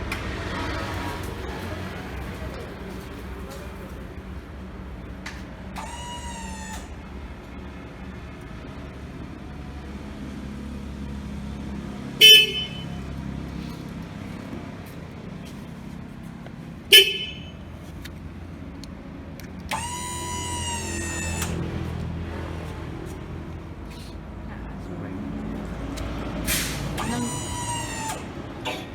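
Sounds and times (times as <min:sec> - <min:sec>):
vehicle horn toots: 0:12.2 - 0:13.2, 0:16.9 - 0:17.7.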